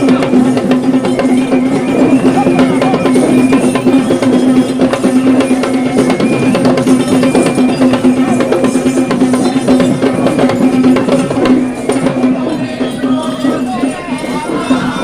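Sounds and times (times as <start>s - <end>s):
fast dense drumming: 0.0s - 7.0s.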